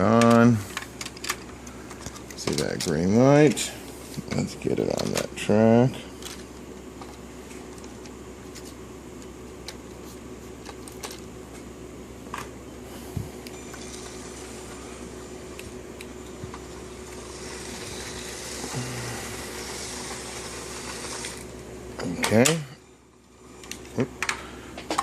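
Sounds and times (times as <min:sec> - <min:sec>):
toy train motor whirring: 0:17.0 - 0:21.5.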